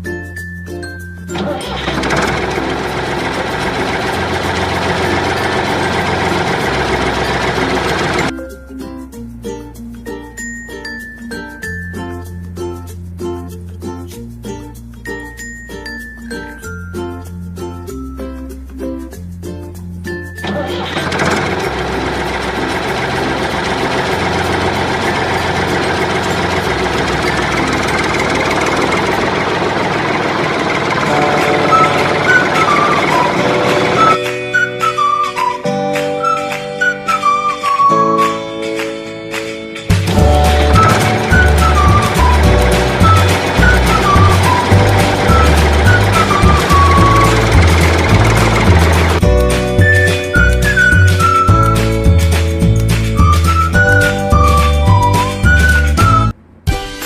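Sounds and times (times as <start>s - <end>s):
engine running roughly: 1.3s - 8.4s, 20.4s - 34.2s, 39.9s - 49.7s
low background music: 30.9s - 57.0s.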